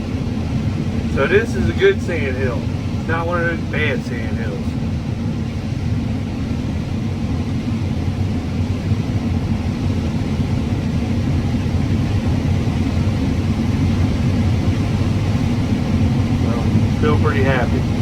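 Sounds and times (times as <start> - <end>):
combine harvester rumbling: 0.0 - 4.8, 15.7 - 18.0.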